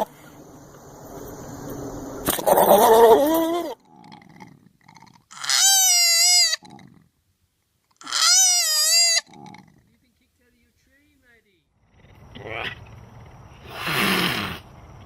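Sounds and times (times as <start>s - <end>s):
animal calling: 2.2s - 7.0s, 7.9s - 10.0s.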